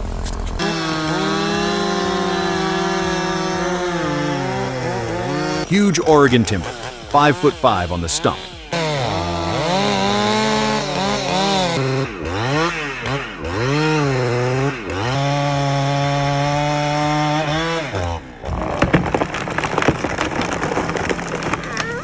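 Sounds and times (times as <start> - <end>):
chainsaw revving: 0.0 - 22.0
wood cracking as tree breaks: 15.3 - 22.0.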